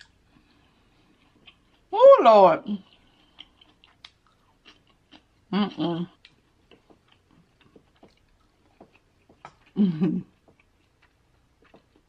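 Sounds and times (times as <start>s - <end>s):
chewing and wet mouth clicks: 2.9s - 5.3s, 6.1s - 9.8s
woman humming: 5.5s - 6.2s, 9.8s - 10.3s.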